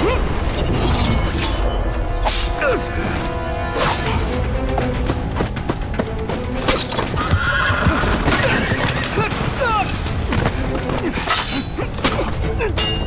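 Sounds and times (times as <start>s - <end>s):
background music: 0.0s - 13.0s
horse whinnying: 7.1s - 9.3s.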